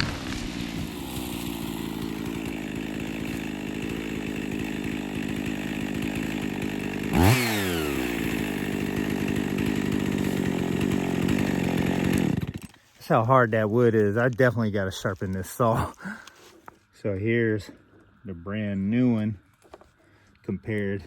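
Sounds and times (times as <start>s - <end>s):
chainsaw cutting wood: 0.0s - 12.9s.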